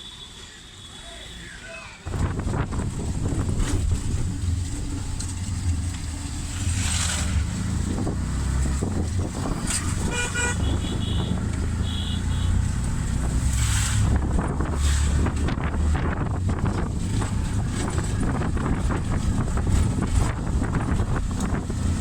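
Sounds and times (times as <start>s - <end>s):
vehicle engine and road rumble: 0.8s - 22.0s
vehicle horn honking: 9.8s - 12.7s.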